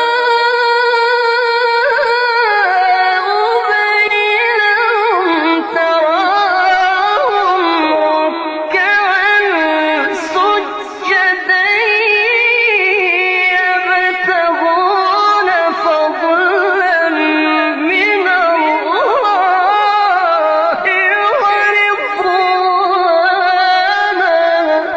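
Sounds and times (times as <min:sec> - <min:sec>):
person singing long held notes: 0:00.0 - 0:24.9.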